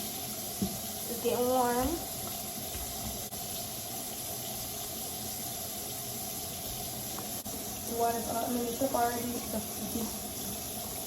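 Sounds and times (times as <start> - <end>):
tap running into sink: 0.4 - 0.9, 1.6 - 3.3.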